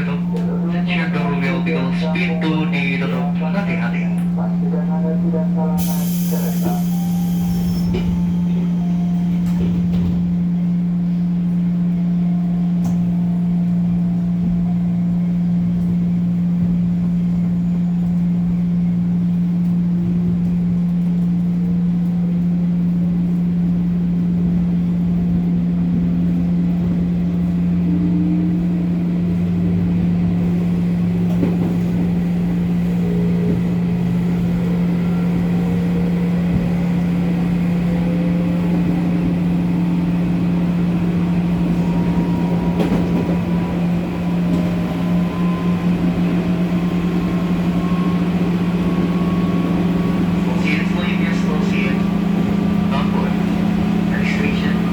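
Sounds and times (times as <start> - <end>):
wheels rumbling on rails: 0.0 - 54.9
electric train motor whine: 32.5 - 54.9.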